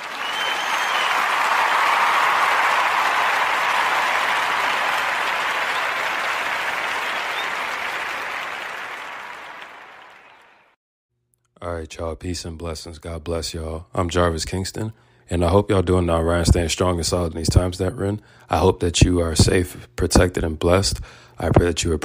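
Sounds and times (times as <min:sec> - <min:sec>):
crowd applause: 0:00.0 - 0:10.8.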